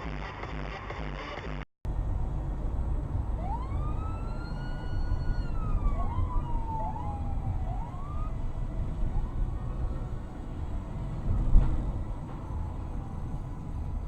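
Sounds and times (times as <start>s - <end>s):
low rumble: 1.9s - 14.0s
emergency siren wailing: 2.1s - 14.0s
siren short rising whoops: 3.4s - 8.4s.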